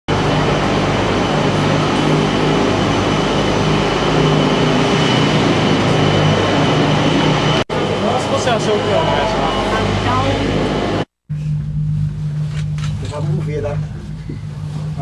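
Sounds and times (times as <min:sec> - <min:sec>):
aerial tramway mechanical hum: 0:00.1 - 0:15.0.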